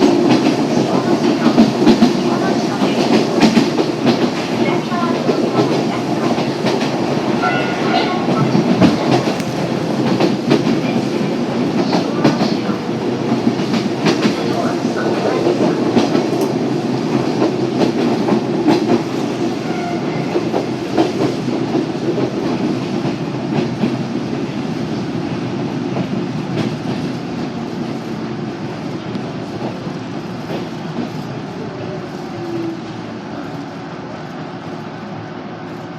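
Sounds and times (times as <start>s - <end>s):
train rumbling: 0.0s - 35.9s.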